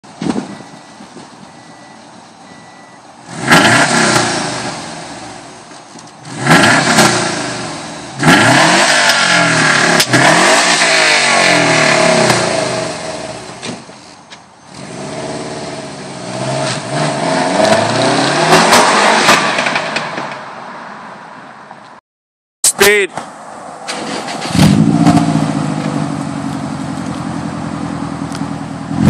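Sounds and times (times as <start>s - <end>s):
car exhaust idling and revving: 3.0s - 20.6s, 24.5s - 29.0s.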